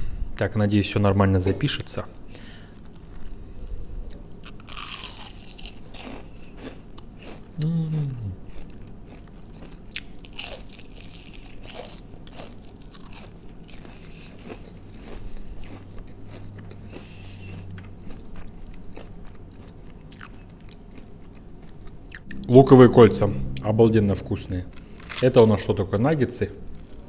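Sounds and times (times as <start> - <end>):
crunching and chewing onion ring: 2.4 - 22.3, 26.7 - 27.0.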